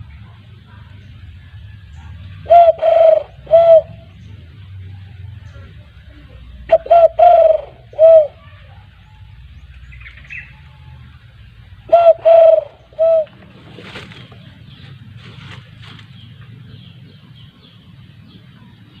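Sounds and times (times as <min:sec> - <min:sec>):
dove cooing through caller: 0:02.4 - 0:04.1, 0:06.6 - 0:08.4, 0:11.8 - 0:13.5.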